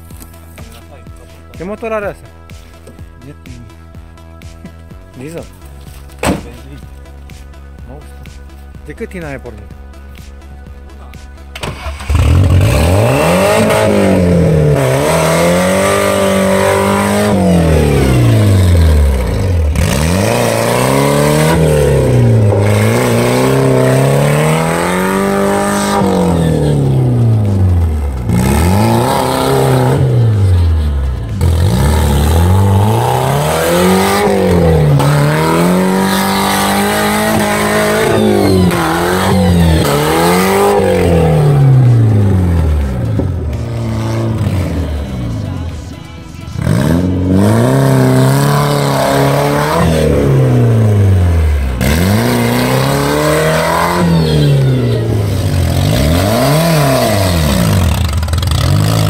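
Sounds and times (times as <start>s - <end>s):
diesel car engine revving: 0.0s - 59.0s.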